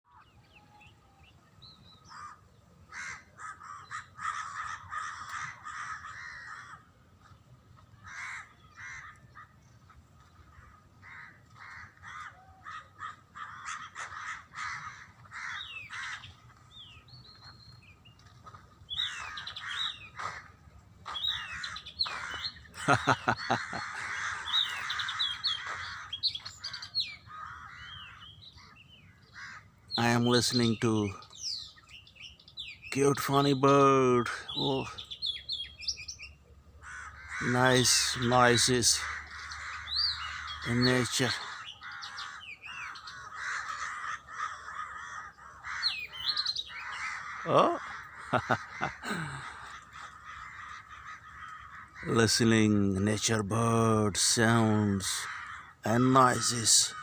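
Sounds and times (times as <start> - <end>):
birds calling and chirping: 0.0 - 57.0.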